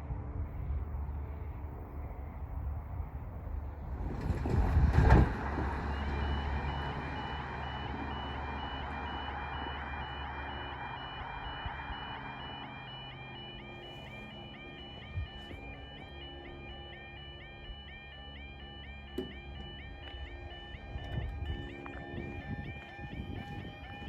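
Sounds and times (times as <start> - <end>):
low engine hum: 0.0 - 24.0
road vehicle passing: 0.0 - 24.0
level crossing alarm yelping: 6.0 - 24.0.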